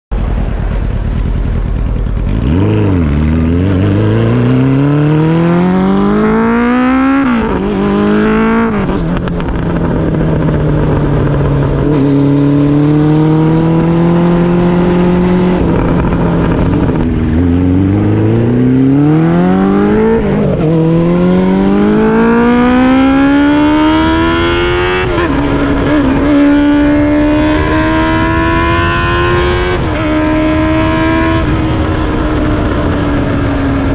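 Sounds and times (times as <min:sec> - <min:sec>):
motorcycle engine accelerating: 0:00.1 - 0:33.9.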